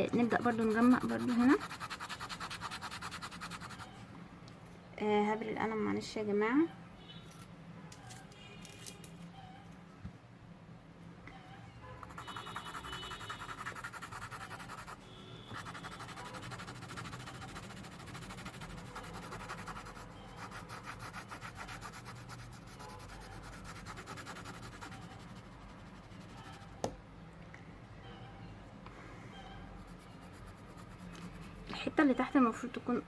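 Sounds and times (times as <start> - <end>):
pencil being sharpened: 0.2 - 3.9, 12.0 - 15.0, 15.6 - 26.6.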